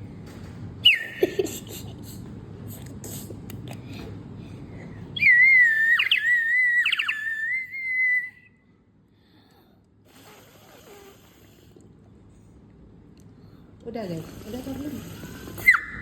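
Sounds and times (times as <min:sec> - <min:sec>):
water bird whistle warbling: 0:00.8 - 0:01.2, 0:05.2 - 0:08.6, 0:15.6 - 0:16.0.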